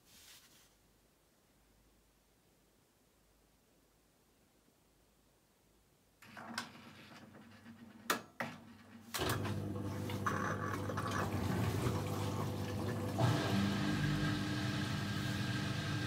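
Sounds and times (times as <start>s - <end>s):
water rushing into washing machine: 9.1s - 16.0s.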